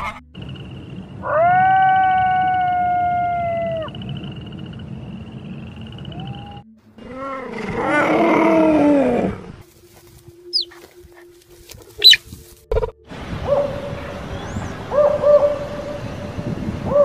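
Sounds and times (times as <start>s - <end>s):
wavering animal cries: 1.2s - 4.0s, 10.5s - 10.8s, 12.0s - 12.2s
high chirps: 10.4s - 10.9s, 12.0s - 12.3s.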